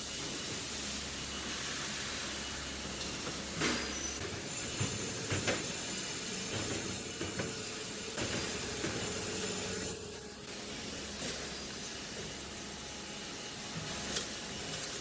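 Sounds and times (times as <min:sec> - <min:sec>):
rolling machine hissing: 0:00.0 - 0:15.0.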